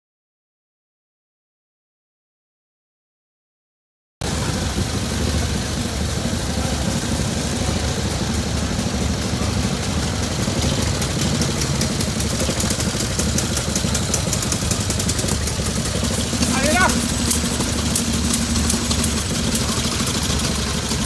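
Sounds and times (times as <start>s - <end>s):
motorcycle engine idling: 4.2s - 21.0s
fast high-pitched ticking: 5.0s - 21.0s.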